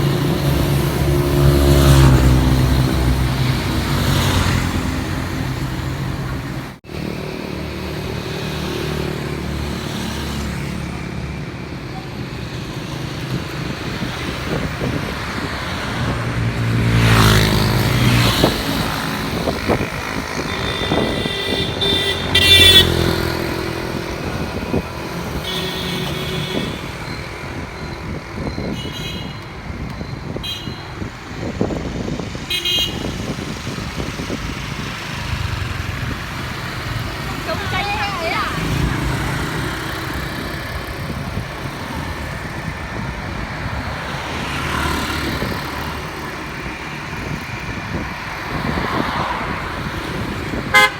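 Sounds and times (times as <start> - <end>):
loud vehicle passing: 0.0 - 11.3, 13.2 - 28.7, 31.3 - 50.9
vehicle engines passing: 0.0 - 50.9
car horn toots: 20.6 - 23.2.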